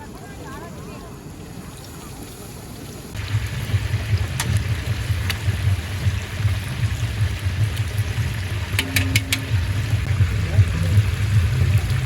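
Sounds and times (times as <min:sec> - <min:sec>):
steady low rumble: 0:03.2 - 0:12.0.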